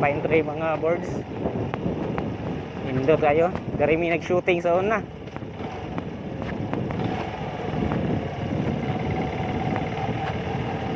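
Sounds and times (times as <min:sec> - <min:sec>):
motorcycle engine running: 0:00.0 - 0:10.9
wind noise on microphone: 0:00.0 - 0:10.9.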